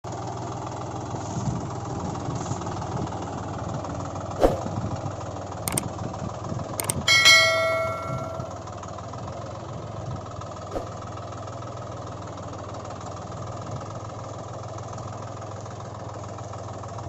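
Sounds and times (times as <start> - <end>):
tractor engine idling: 0.1 - 10.6
sharp clicks: 5.7 - 5.9, 6.8 - 8.5
ringing tone: 6.8 - 8.7.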